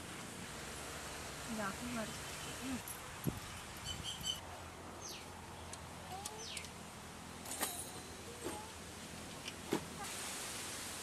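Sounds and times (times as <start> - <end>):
low background noise: 0.0 - 11.0
high bird chirps: 3.7 - 4.4.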